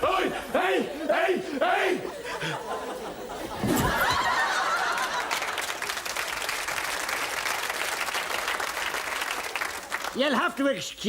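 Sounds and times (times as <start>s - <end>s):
audience laughing: 0.0s - 6.2s
audience applauding: 4.0s - 10.5s.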